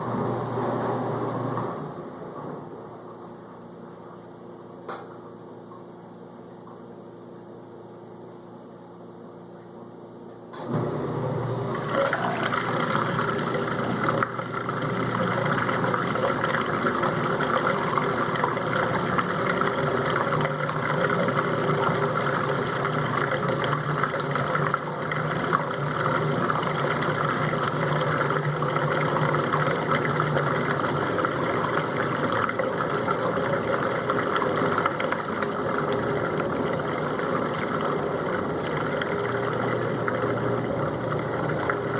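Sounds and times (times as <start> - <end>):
dishwasher pump draining water: 10.6 - 41.9.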